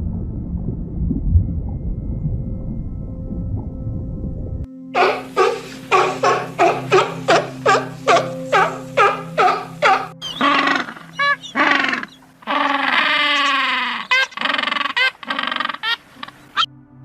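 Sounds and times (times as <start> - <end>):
background music: 0.0 - 14.9, 15.5 - 17.0
animal cries: 5.0 - 16.7
long falling animal call: 5.0 - 16.7.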